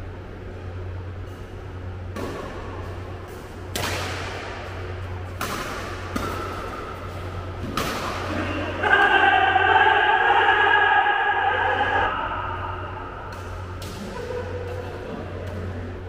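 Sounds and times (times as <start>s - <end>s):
steady low hum: 0.0s - 16.0s
badminton rackets hitting shuttlecock: 2.1s - 9.2s, 13.2s - 15.6s.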